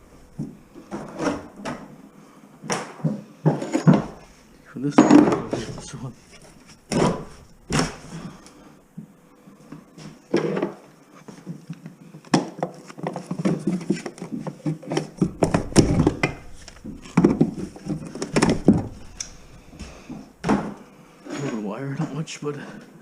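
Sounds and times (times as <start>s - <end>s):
demolition knocks and clatter: 15.1s - 19.2s.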